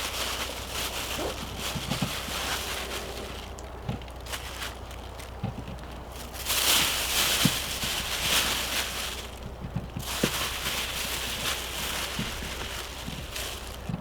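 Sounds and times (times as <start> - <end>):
potato bags rustling: 0.0 - 14.0
small knocks: 3.5 - 7.8, 8.4 - 14.0.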